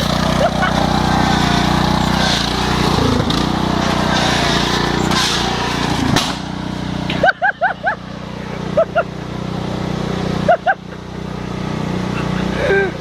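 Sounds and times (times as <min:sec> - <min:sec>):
lawn tractor engine running: 0:00.0 - 0:13.0.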